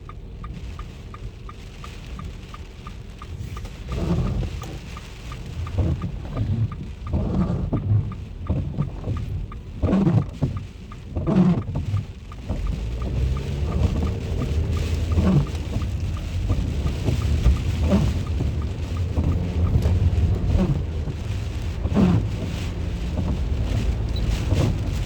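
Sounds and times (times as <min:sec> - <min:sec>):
rain falling: 0:00.0 - 0:25.0
low rumbling: 0:10.6 - 0:25.0.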